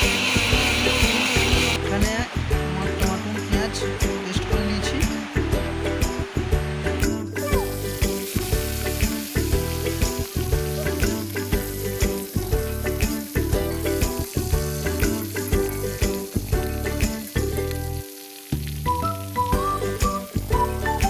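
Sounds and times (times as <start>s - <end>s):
background music with beat: 0.0s - 18.0s, 18.6s - 21.0s
food sizzling in hot oil: 0.0s - 21.0s.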